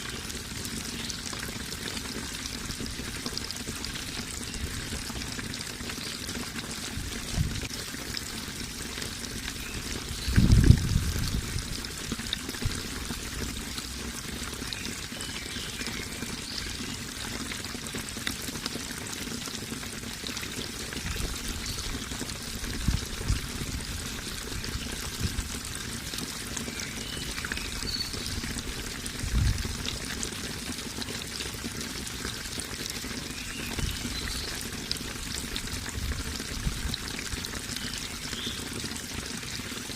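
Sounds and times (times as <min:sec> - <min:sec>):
running water pouring and trickling: 0:00.0 - 0:39.9.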